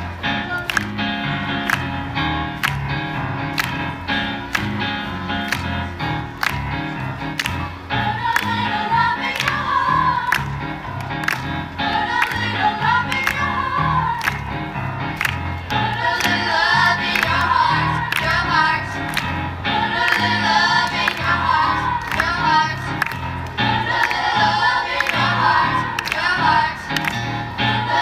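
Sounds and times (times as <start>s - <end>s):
bass line: 0.0s - 28.0s
children's choir singing: 7.9s - 14.7s, 15.6s - 28.0s.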